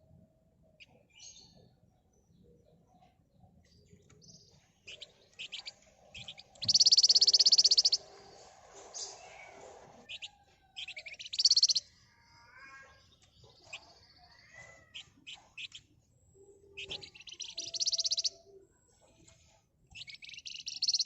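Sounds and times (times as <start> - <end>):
bird chirping: 0.5 - 21.0
rapid bird trill: 4.8 - 8.1, 10.1 - 11.9, 12.5 - 15.9, 16.7 - 18.6, 19.9 - 21.0.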